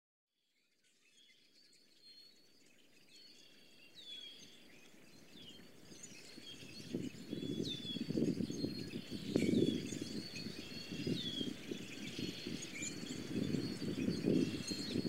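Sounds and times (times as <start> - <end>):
birds chirping and calling: 3.2 - 15.0.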